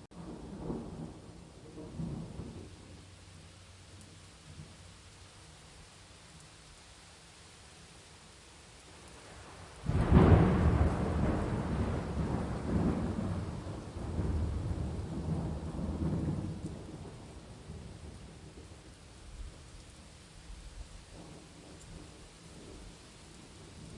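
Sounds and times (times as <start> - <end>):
steady rain: 0.0 - 23.9
thunderclap and rolling rumble: 0.2 - 3.2, 9.1 - 19.8, 20.4 - 23.9.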